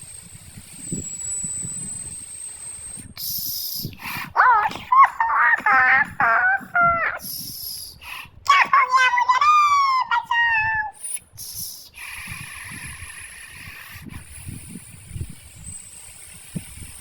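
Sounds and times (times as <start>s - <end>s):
high-pitched animal-like calls: 3.2s - 12.1s.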